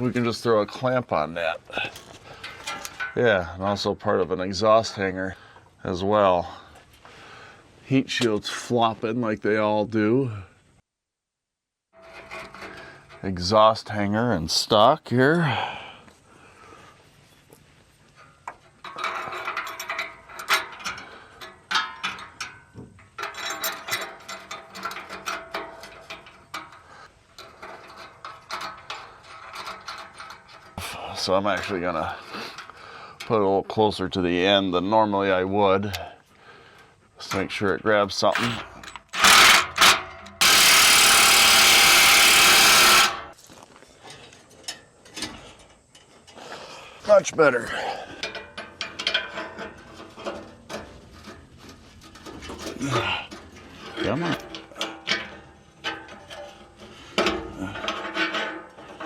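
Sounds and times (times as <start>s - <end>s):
ratchet wrench clicking: 39.1s - 43.3s
cordless power tool running: 39.2s - 43.3s.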